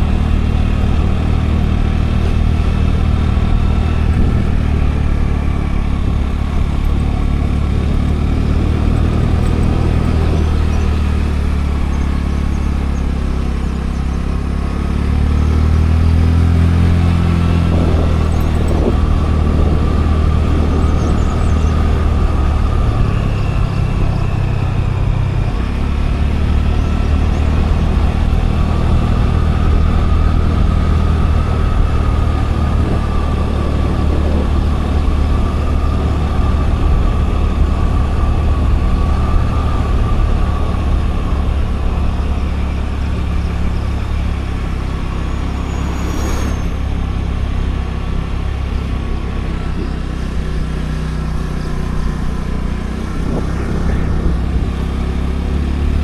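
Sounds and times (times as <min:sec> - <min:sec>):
road noise: 0:00.0 - 0:56.0
scooter engine running: 0:00.0 - 0:56.0
short high squeak: 0:45.0 - 0:47.3.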